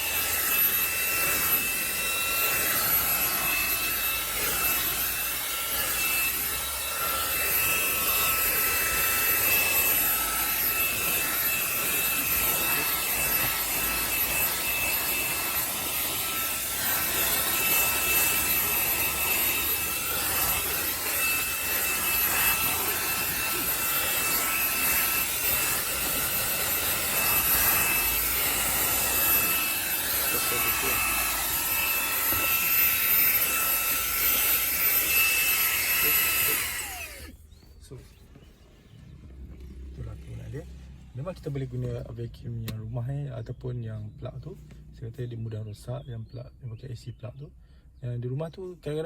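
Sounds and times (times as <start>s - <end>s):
handheld vacuum cleaner running: 0.0s - 37.6s.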